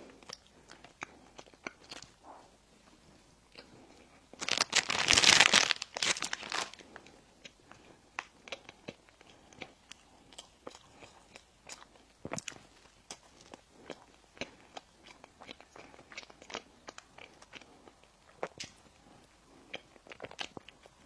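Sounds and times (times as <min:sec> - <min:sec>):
quiet chewing: 0:00.0 - 0:04.5, 0:06.6 - 0:21.0
crunching bread: 0:04.3 - 0:07.1.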